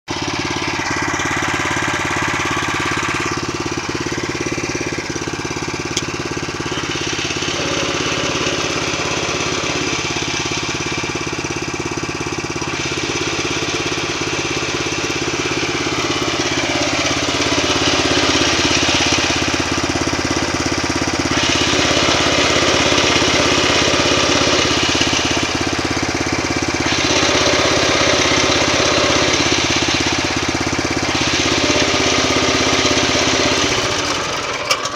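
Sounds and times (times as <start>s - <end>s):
tractor diesel engine running: 0.1s - 34.9s
gearbox noise: 6.0s - 10.4s.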